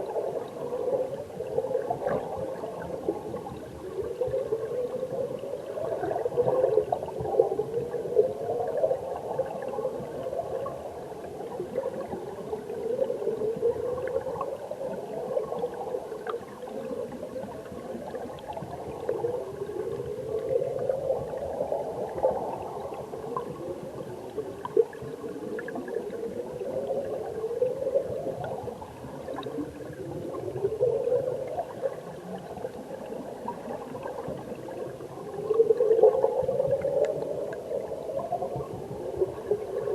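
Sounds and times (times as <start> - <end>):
underwater stream gurgling rush: 0.0 - 39.9
faint ticks: 11.4 - 19.4, 36.7 - 39.5.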